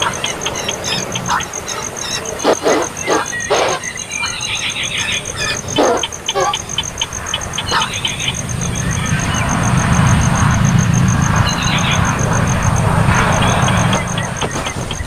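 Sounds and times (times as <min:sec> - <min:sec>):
vehicle passing by: 0:07.2 - 0:15.0.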